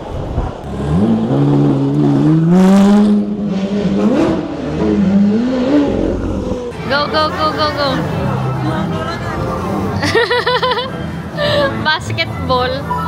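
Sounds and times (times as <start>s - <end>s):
motorcycle engine accelerating: 0.0s - 7.1s.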